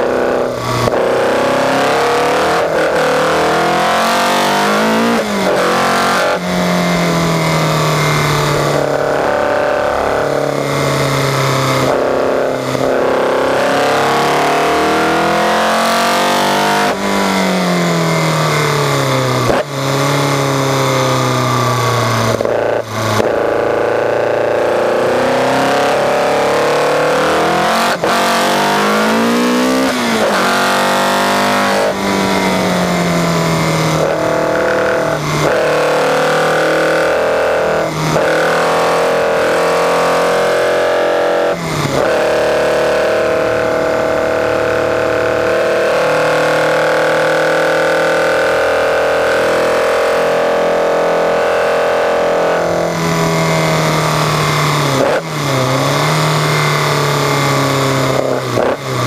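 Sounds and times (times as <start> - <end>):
car engine at full load: 0.0 - 59.0.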